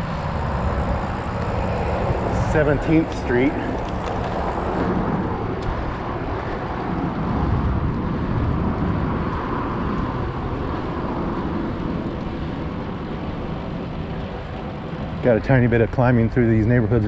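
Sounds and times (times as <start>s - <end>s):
wind noise on microphone: 0.0s - 17.0s.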